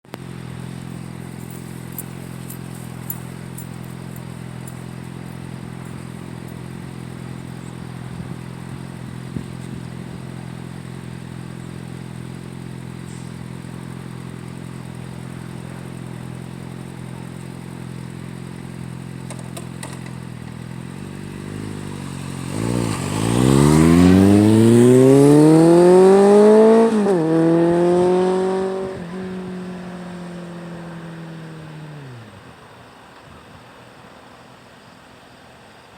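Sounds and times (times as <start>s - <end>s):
motorcycle engine idling and revving: 0.0s - 35.9s.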